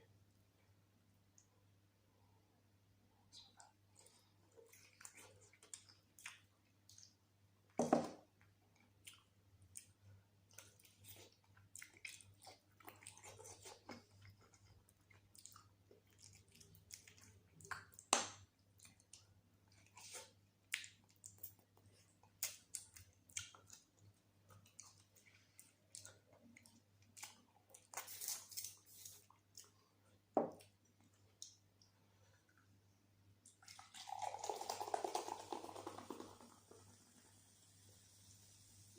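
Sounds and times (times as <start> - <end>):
wet chewing and lip smacks: 3.3 - 7.2, 8.4 - 32.8.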